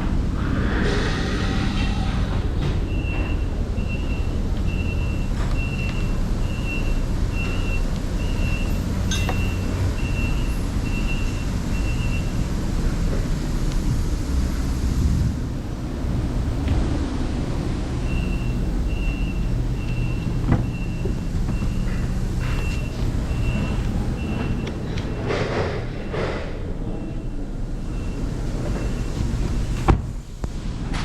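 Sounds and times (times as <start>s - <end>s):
low engine rumble: 0.0s - 31.0s
reversing alarm beeping: 1.0s - 13.6s, 17.6s - 30.0s.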